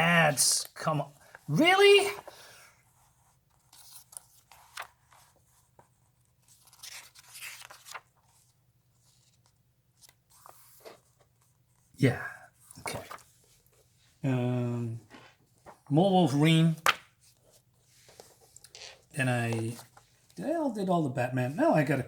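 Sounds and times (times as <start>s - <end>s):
paper pages rustling: 1.2s - 11.9s, 12.6s - 14.1s, 15.1s - 20.4s.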